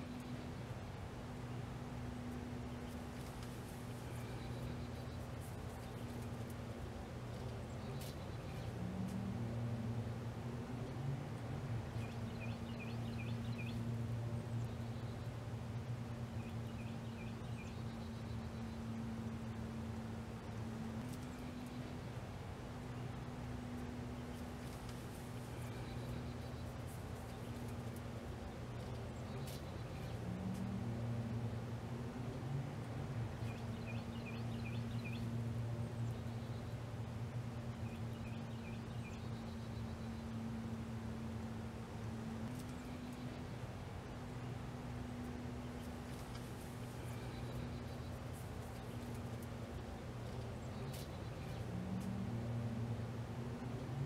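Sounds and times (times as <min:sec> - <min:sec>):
steady low hum: 0:00.0 - 0:54.0
small bird chirping: 0:45.2 - 0:52.1.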